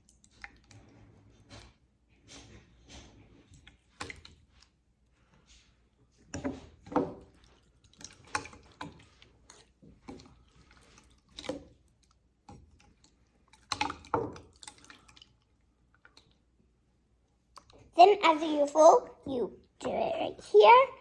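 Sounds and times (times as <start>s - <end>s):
slime squelching: 6.3s - 16.6s.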